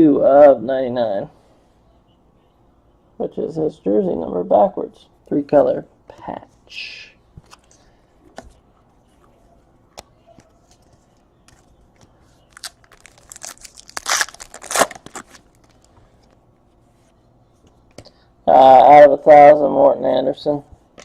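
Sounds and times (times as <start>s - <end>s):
foil wrapper tearing and crinkling: 12.5s - 15.8s.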